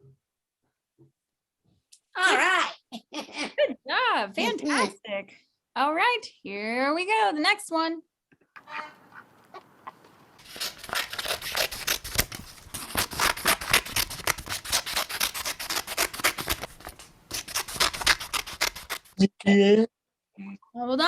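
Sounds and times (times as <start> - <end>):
scissors cutting paper: 10.4 - 19.2.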